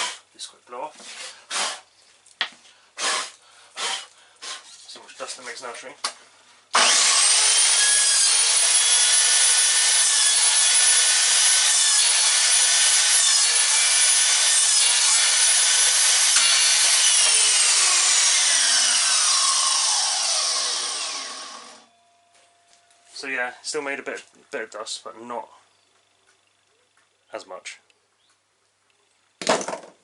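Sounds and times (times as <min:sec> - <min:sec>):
mitre saw cutting wood: 0:00.0 - 0:00.2, 0:01.1 - 0:01.8, 0:03.0 - 0:04.8, 0:06.7 - 0:21.9.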